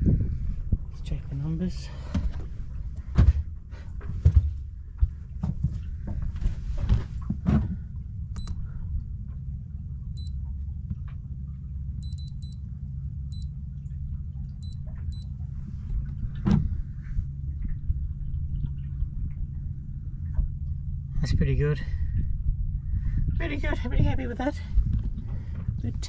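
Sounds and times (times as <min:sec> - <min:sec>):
low rumble: 0:00.0 - 0:26.0
electronic button beeps: 0:12.0 - 0:12.6, 0:14.6 - 0:15.3.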